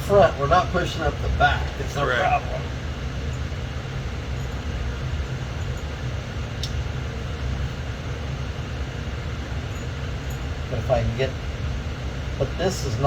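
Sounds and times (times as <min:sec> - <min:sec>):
low mechanical rumble: 0:00.0 - 0:13.0
light click: 0:06.6 - 0:06.8.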